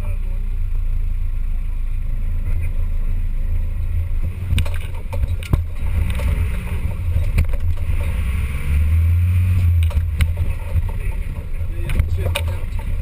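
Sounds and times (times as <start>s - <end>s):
off-road engine droning: 0.0s - 13.0s
sharp knocks and clunks: 4.3s - 8.6s, 9.6s - 13.0s.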